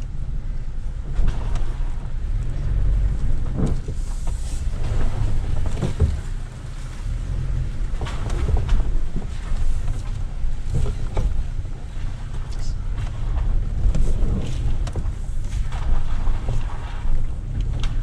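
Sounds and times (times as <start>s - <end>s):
vehicle engine rumble: 0.0s - 18.0s
knocks and rattles from bumps: 1.0s - 18.0s.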